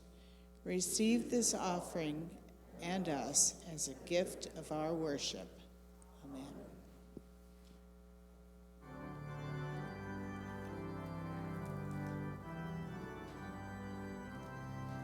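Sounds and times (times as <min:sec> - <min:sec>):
church organ playing hymn: 0:08.8 - 0:15.0.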